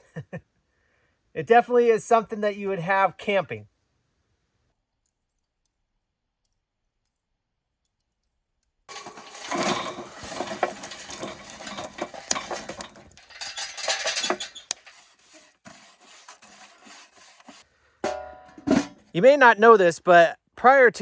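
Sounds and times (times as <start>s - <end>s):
charcoal clattering in metal grill: 8.9s - 19.2s.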